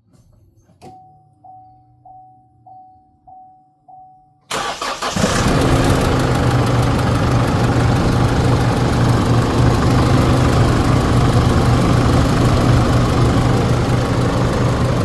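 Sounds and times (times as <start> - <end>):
diesel engine cranking and idling: 4.5 - 15.0.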